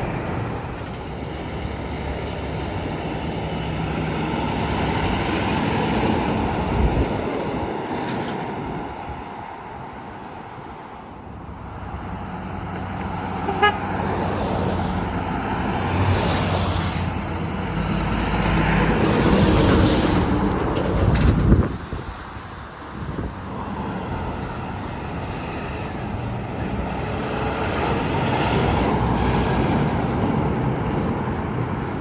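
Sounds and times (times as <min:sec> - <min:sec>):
highway traffic passing: 0:00.0 - 0:32.0
car horn toot: 0:13.4 - 0:13.9.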